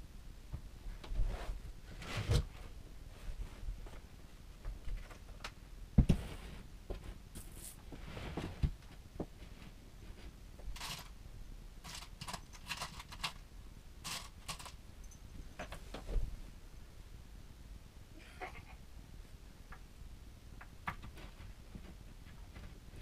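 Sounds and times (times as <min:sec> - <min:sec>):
objects being handled: 0:11.8 - 0:13.4, 0:14.0 - 0:16.2.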